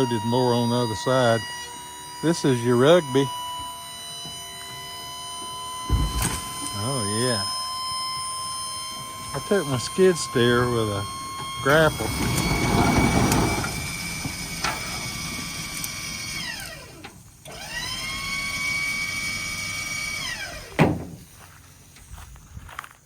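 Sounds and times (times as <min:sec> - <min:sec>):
hydraulic pump motor whining: 0:00.0 - 0:21.2
sharp knock: 0:05.9 - 0:06.5.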